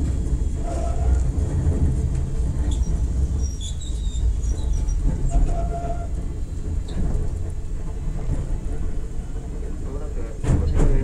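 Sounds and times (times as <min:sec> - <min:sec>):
train wheels and motors rumbling: 0:00.0 - 0:11.0
brief high squeaks: 0:02.7 - 0:06.1.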